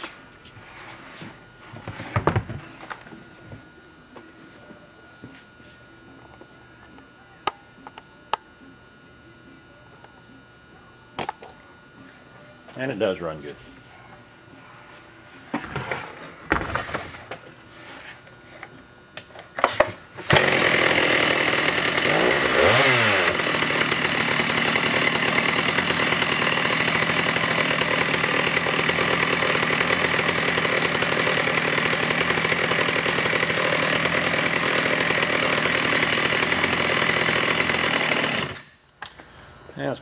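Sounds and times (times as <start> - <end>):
chainsaw engine starting and running: 19.7 - 38.8.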